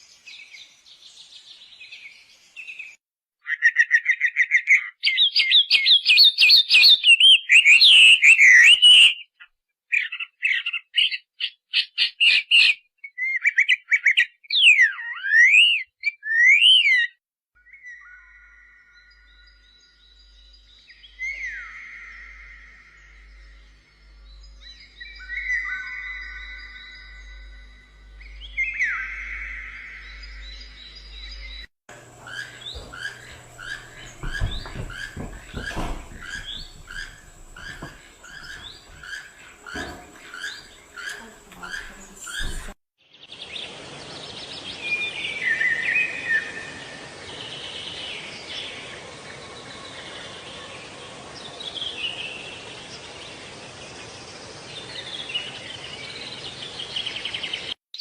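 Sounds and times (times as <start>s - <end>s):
bird calling: 28.2s - 42.8s
dull thumps: 31.9s - 42.8s.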